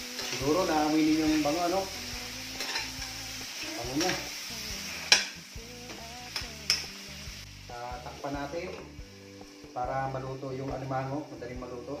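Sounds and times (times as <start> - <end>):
crab frying in oil: 0.0 - 12.0
metal spatula scraping and clanking: 2.6 - 3.1.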